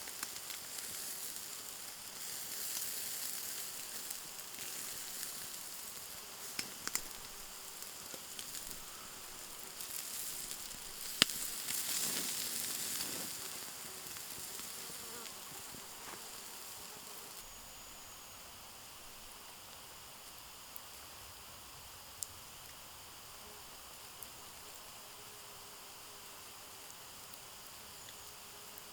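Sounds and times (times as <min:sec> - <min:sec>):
crackles and pops: 0:00.0 - 0:17.5, 0:26.5 - 0:28.9
food sizzling in a pan: 0:00.0 - 0:18.1.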